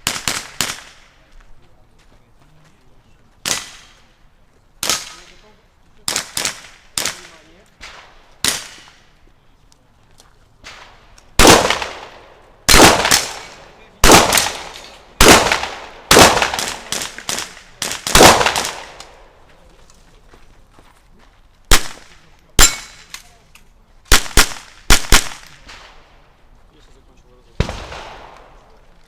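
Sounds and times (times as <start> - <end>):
rifle shots: 0.0 - 1.2, 3.4 - 4.0, 4.8 - 5.4, 6.0 - 9.0, 10.6 - 19.3, 21.7 - 23.1, 24.1 - 26.1, 27.6 - 28.8.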